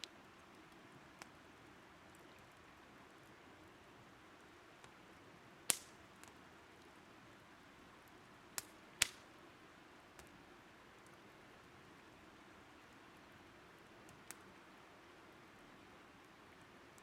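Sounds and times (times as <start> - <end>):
firewood crackling: 0.0 - 17.0
fire popping: 5.6 - 7.0, 8.0 - 9.3, 14.0 - 14.5.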